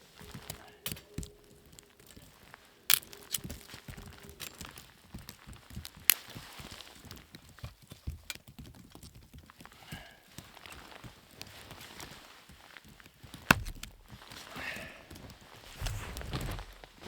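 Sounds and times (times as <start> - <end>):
sharp clicks: 13.5 - 14.2
footsteps crunching through snow: 13.5 - 17.0.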